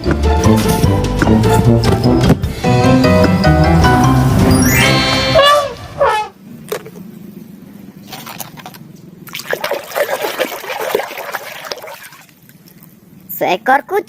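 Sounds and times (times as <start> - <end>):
water trickling and splashing: 8.0 - 13.3.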